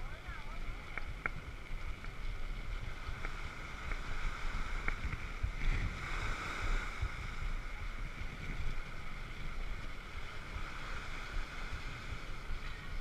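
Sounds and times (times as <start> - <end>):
wind rumbling on microphone: 0.0 - 13.0
light ticks: 0.8 - 2.3, 3.1 - 4.1.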